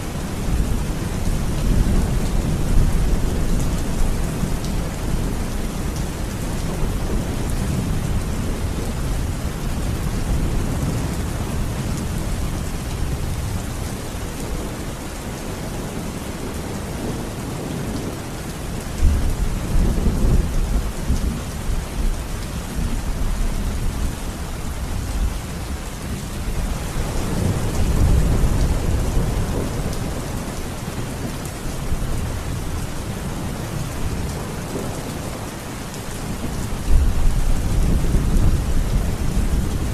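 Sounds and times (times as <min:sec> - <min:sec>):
steady rain: 0:00.0 - 0:39.9
rolling thunder: 0:26.5 - 0:35.2.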